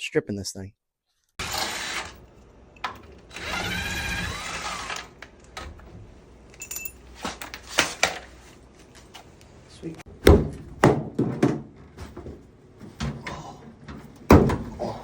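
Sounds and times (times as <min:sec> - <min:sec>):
handheld power tool running: 0:01.4 - 0:02.2, 0:02.9 - 0:05.2.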